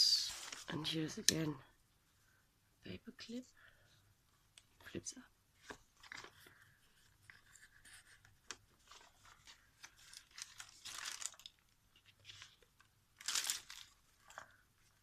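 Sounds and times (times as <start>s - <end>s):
page turning: 0.2s - 1.0s, 5.6s - 15.0s
paper rustling: 0.2s - 1.0s, 5.6s - 15.0s.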